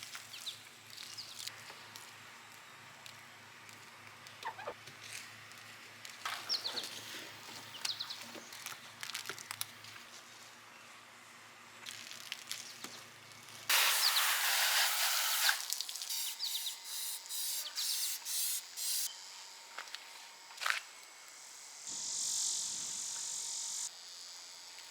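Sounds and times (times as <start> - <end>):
birds chirping: 6.4 - 8.5, 16.2 - 18.0
water spraying hiss: 13.7 - 19.0.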